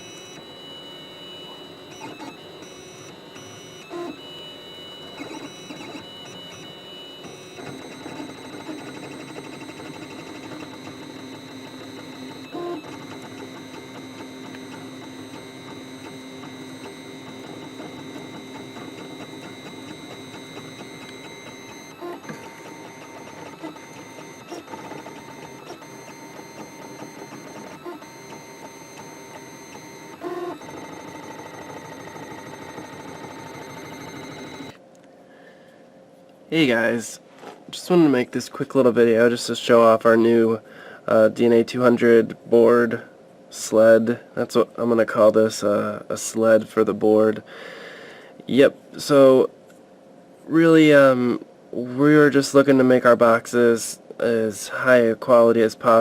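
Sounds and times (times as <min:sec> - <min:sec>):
stepper motors whining: 0:00.0 - 0:34.8.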